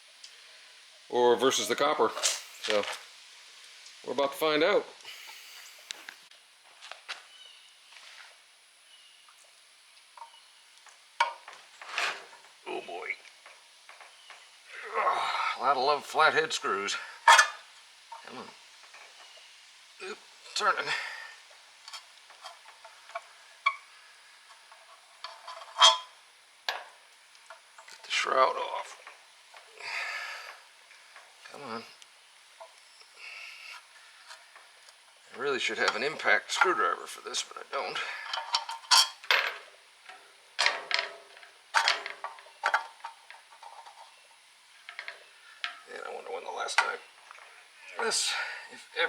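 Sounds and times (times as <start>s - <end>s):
metal tools clanking on motor housing: 17.2s - 19.2s, 24.5s - 26.9s, 35.6s - 44.1s.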